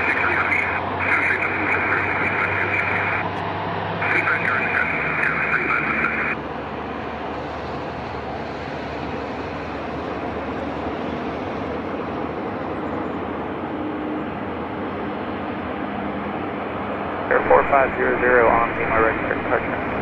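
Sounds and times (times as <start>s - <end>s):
tinny radio transmission: 0.0s - 3.3s, 4.0s - 6.4s, 17.3s - 20.0s
jet engines running: 0.0s - 20.0s.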